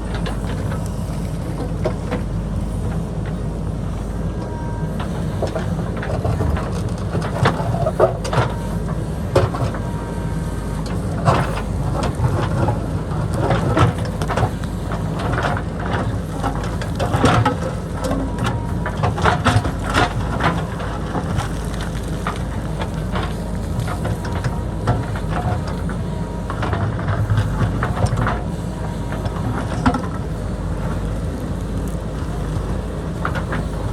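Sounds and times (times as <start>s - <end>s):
diesel engine running: 0.0s - 33.9s
rock and soil crunching: 4.9s - 33.9s.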